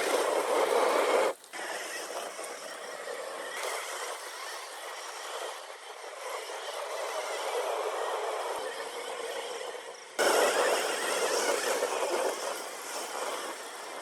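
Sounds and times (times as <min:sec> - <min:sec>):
electric motor running: 0:00.5 - 0:14.0
tyres scrabbling on loose soil: 0:10.2 - 0:14.0.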